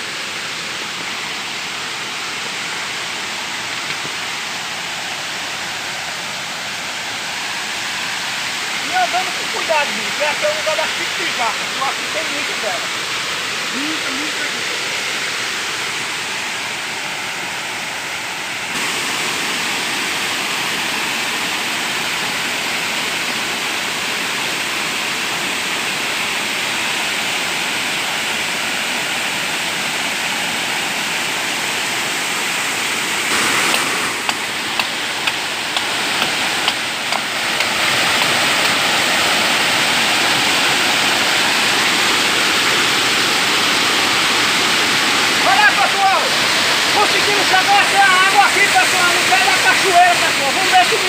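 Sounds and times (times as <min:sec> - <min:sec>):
waterfall roaring: 0:00.0 - 0:51.0.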